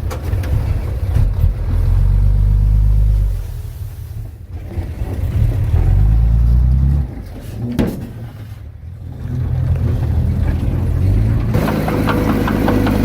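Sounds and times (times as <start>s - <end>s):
heavy diesel engine running: 8.8s - 13.0s.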